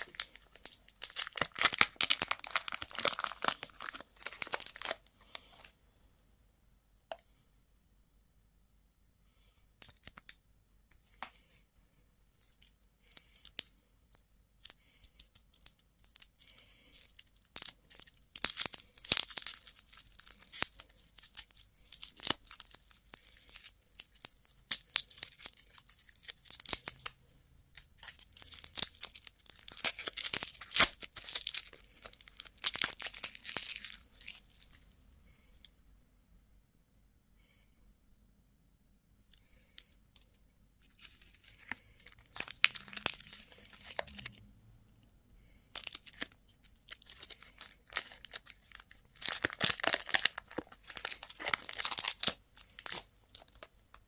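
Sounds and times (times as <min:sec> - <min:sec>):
candy wrapper crinkling: 0:00.0 - 0:05.7, 0:09.8 - 0:10.4, 0:12.4 - 0:35.0, 0:39.4 - 0:44.4, 0:45.7 - 0:54.0.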